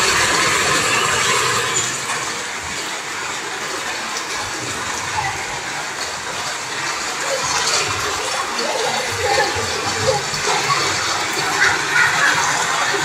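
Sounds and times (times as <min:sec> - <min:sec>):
heavy rain: 0:00.0 - 0:13.0
running water: 0:00.0 - 0:13.0.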